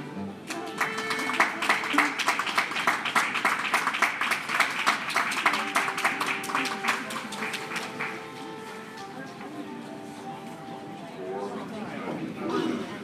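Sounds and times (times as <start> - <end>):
crowd clapping: 0.5 - 9.4.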